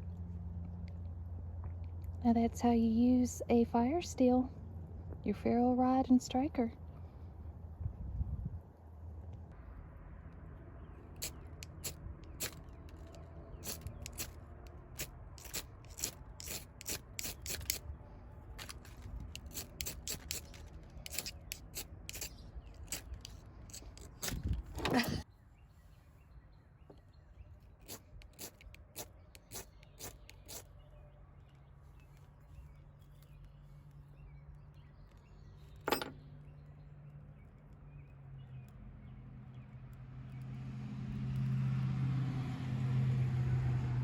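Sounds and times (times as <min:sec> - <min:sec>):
striker scraping fire-starter rod: 0:11.1 - 0:17.9, 0:18.5 - 0:25.2, 0:27.8 - 0:30.7.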